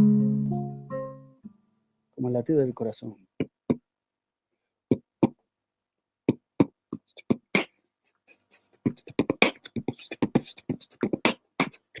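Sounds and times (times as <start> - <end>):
person beatboxing: 3.4 - 3.9, 4.9 - 5.4, 6.2 - 12.0.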